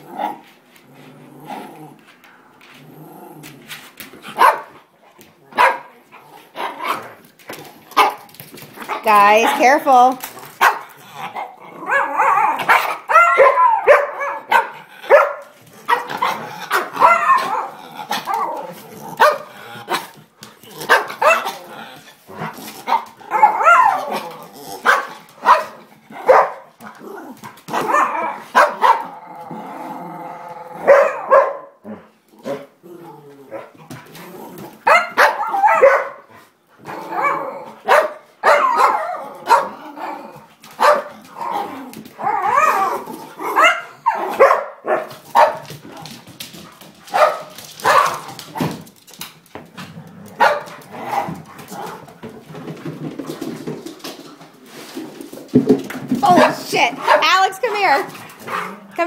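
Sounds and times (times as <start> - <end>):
dogs barking and yipping: 4.3 - 4.8, 5.5 - 7.2, 7.9 - 20.1, 20.8 - 21.6, 22.4 - 29.1, 30.8 - 31.8, 34.8 - 39.8, 40.5 - 48.8, 50.3 - 52.1, 56.2 - 59.0
dog drawn-out cry: 37.1 - 39.8.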